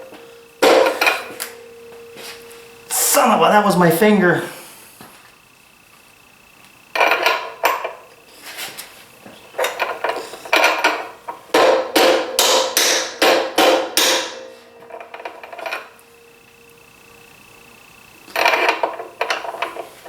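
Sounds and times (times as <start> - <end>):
mallet striking metal: 11.6 - 14.6.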